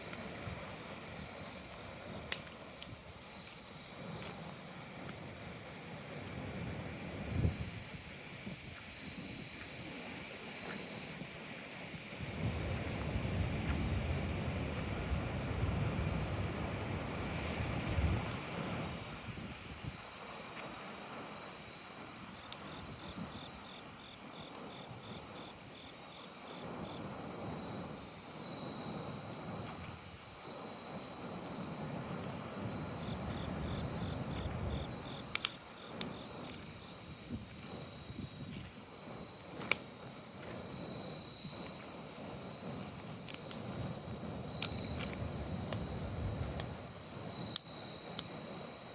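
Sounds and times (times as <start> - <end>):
bonfire pops: 0.0 - 7.6, 11.9 - 20.8, 26.6 - 48.9
insects chirring: 0.0 - 48.9
pulsing insect trill: 0.0 - 48.9.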